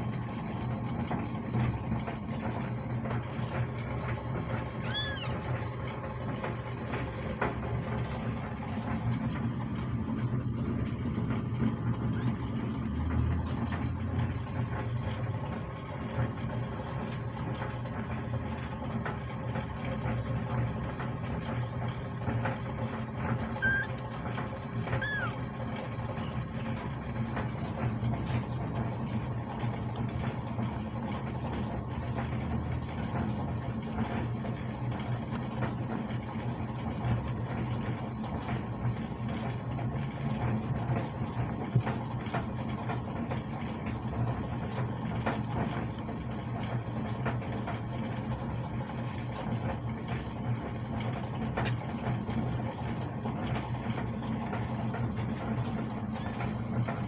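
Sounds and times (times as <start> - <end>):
kitten purring: 4.6 - 5.8, 23.5 - 24.2, 24.9 - 26.6.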